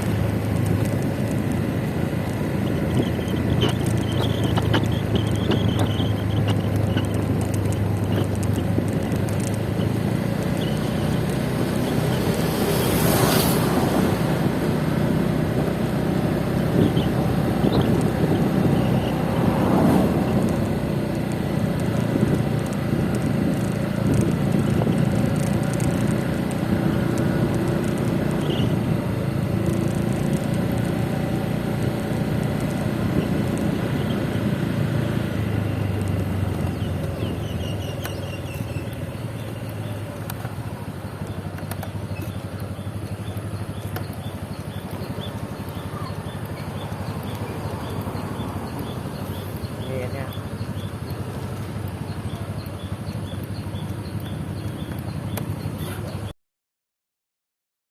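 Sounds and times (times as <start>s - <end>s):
motor scooter engine hum: 0.0s - 56.3s
road noise: 0.0s - 56.4s
wind noise: 16.4s - 20.9s, 22.0s - 26.1s.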